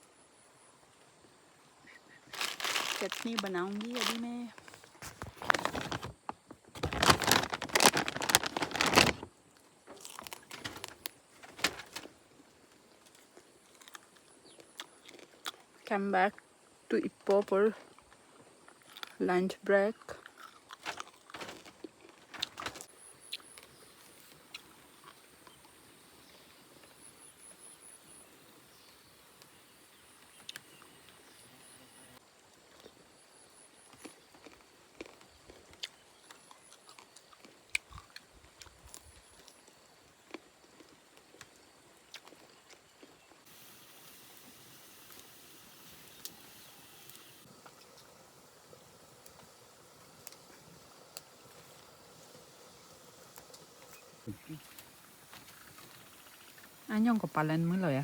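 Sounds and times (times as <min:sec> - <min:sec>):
faint insect chirping: 0:00.0 - 0:58.0
crinkling handling noise: 0:02.3 - 0:14.0, 0:20.3 - 0:22.9.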